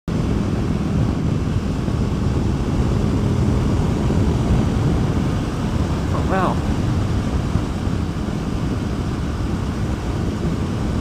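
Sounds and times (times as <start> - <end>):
wind noise: 0.1 - 11.0
motorcycle engine cruising: 0.2 - 11.0.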